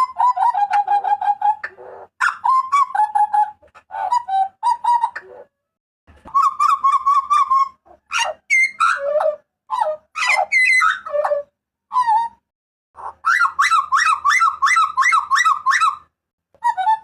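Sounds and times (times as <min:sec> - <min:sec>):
bird calling with whistled phrases: 0:06.2 - 0:12.4, 0:13.0 - 0:17.0.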